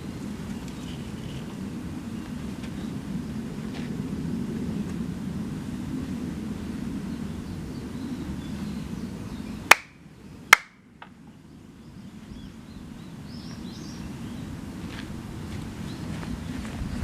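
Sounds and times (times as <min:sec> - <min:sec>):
small birds twittering: 0:00.0 - 0:04.8, 0:05.7 - 0:10.5, 0:11.2 - 0:17.0
low steady rumble: 0:00.0 - 0:17.0
hand claps: 0:09.7 - 0:09.9.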